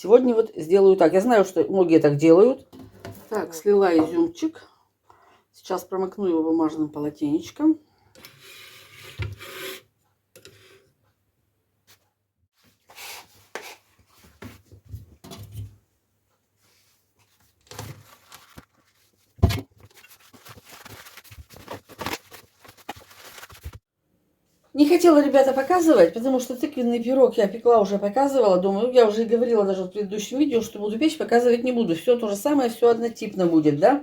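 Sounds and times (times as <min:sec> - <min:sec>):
paper towel rustling: 0:16.6 - 0:23.8.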